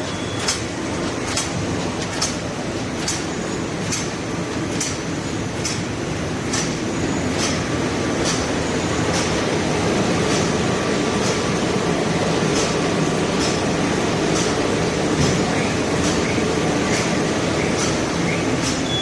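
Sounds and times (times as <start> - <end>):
packaging machine running: 0.0 - 19.0
sharp machine clicks: 0.1 - 5.9, 16.0 - 19.0.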